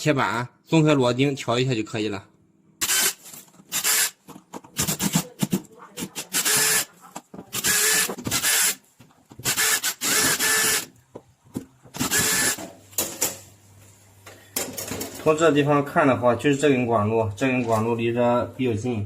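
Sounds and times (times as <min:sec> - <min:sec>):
electric screwdriver running: 0:02.8 - 0:04.2, 0:06.2 - 0:06.9, 0:07.5 - 0:08.8, 0:09.4 - 0:10.9, 0:12.0 - 0:12.6.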